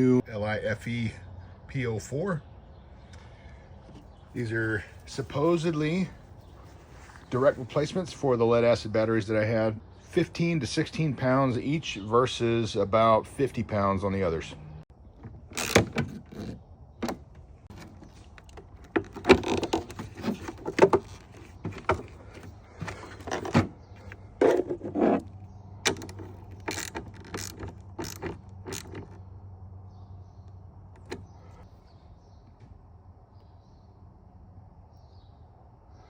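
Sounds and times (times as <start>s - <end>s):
tools clicking and clunking: 14.6s - 29.3s, 30.9s - 31.3s.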